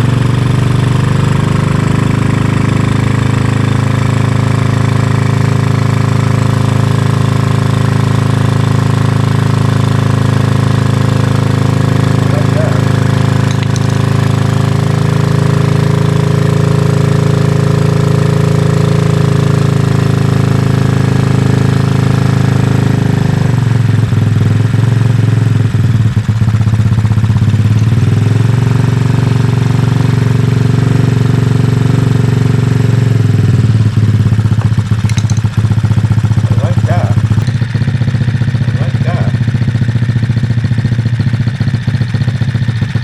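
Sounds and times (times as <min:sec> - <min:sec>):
small motorbike engine running: 0:00.0 - 0:43.0.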